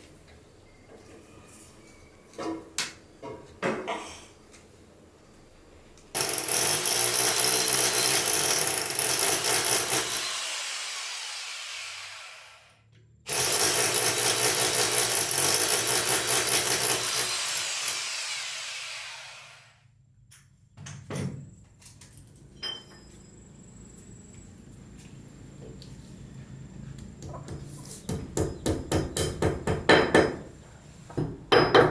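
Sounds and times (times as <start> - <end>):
electric power drill running: 6.2 - 19.8.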